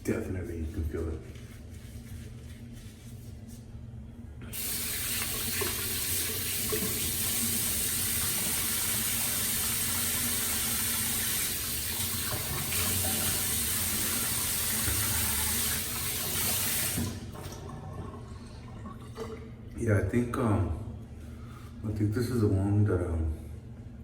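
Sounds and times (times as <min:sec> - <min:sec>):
water running into basin: 0:04.5 - 0:19.8.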